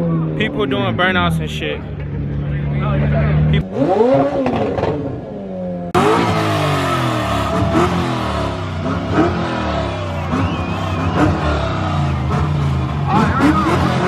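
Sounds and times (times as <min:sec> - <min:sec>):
car engine revving: 0:06.0 - 0:14.0.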